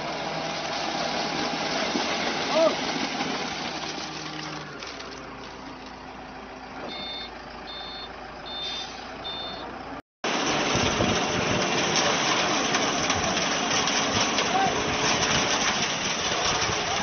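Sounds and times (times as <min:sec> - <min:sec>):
reversing alarm beeping: 0:06.9 - 0:09.7.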